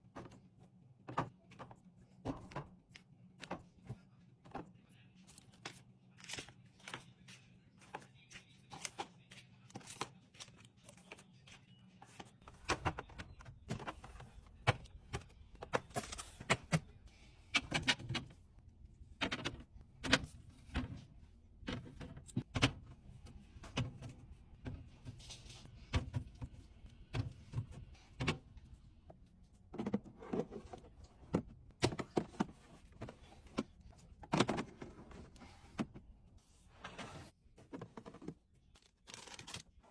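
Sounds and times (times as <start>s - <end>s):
packages and containers being handled: 37.0s - 39.9s.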